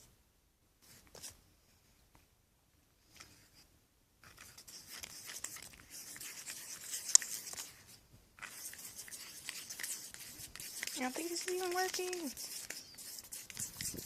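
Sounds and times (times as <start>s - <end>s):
utensil scraping slime: 4.3s - 14.0s.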